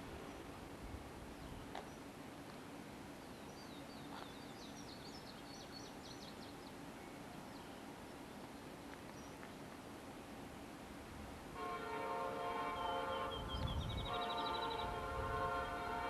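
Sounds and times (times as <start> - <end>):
faint steady hiss: 0.0 - 16.0
songbird singing: 12.5 - 16.0.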